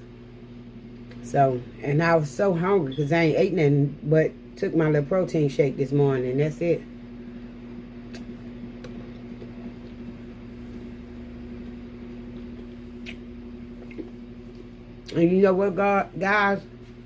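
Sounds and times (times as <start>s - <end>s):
appliance electrical hum: 0.0s - 17.0s
person eating: 8.0s - 15.2s.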